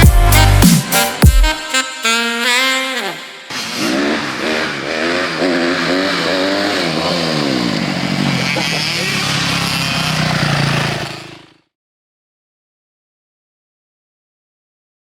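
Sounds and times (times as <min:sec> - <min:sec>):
dirt bike engine revving: 0:02.1 - 0:11.7.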